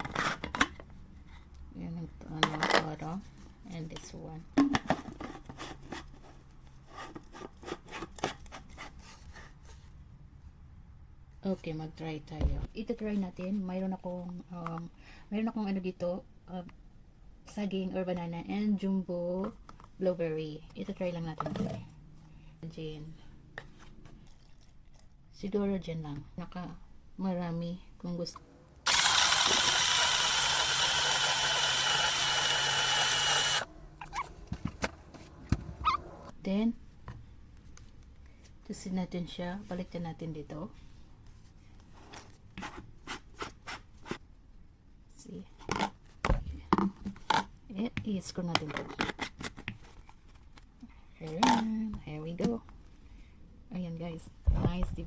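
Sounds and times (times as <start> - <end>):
blender motor whining: 28.8 - 36.3
objects rubbing and scraping: 33.4 - 36.3.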